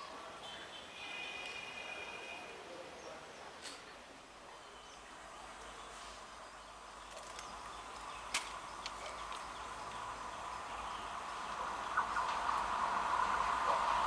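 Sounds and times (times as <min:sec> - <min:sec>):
train running gear hum: 0:06.2 - 0:14.0.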